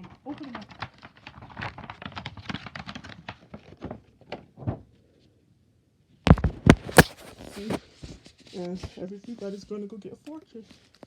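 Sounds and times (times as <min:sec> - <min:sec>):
plastic wrapper crinkling: 0:06.3 - 0:07.8.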